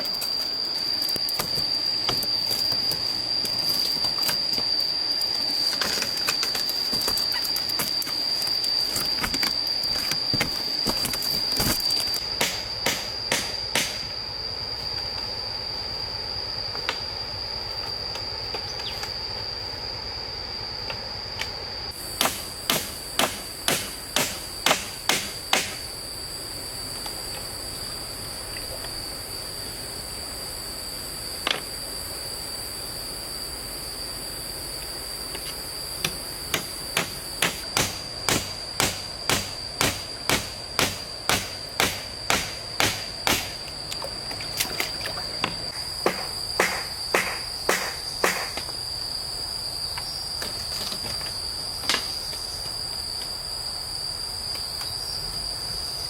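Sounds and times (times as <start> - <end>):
high insect drone: 0.0 - 56.0
sharp strikes on wood: 12.4 - 14.0, 22.2 - 25.8, 36.0 - 43.6, 46.0 - 48.6.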